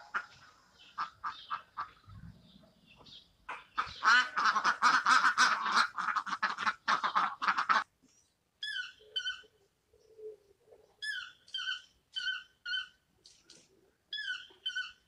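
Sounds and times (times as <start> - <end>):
ducks quacking: 0.0 - 2.1, 3.7 - 7.9
toucan yelping calls: 8.6 - 9.5, 11.0 - 13.0, 14.1 - 15.0.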